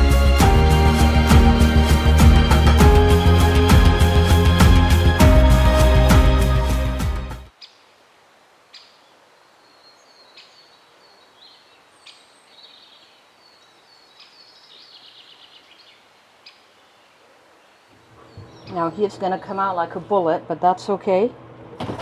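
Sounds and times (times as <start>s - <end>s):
small birds chirping: 8.7s - 19.6s.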